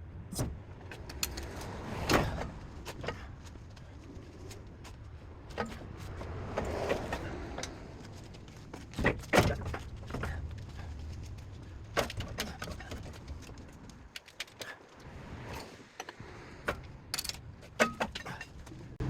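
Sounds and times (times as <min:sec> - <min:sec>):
metal clunks and scrapes: 0:00.3 - 0:03.6, 0:04.5 - 0:10.9, 0:15.4 - 0:19.0.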